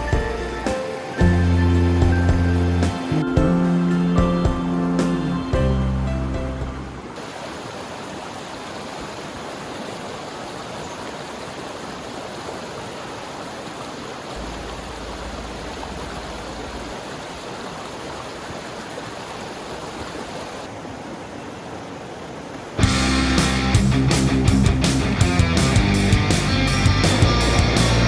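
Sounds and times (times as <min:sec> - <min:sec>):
stream water rushing: 0:00.0 - 0:23.7
low rumble: 0:14.4 - 0:17.9.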